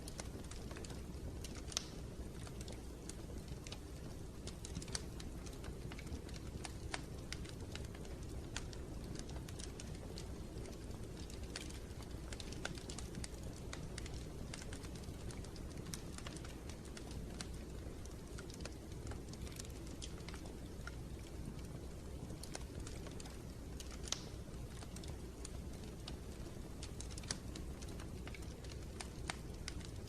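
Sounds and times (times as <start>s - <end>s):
low rumble of fire: 0.0s - 30.0s
wood fire crackling: 0.0s - 30.0s.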